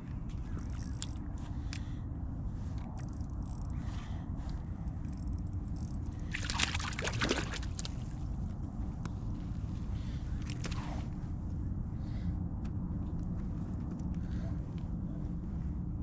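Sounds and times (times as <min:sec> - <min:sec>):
water sloshing and splashing: 0:06.2 - 0:08.3.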